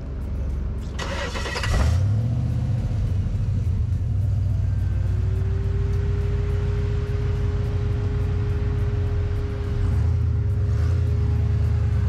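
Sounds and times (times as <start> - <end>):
engine revving under load: 5.2 - 12.0.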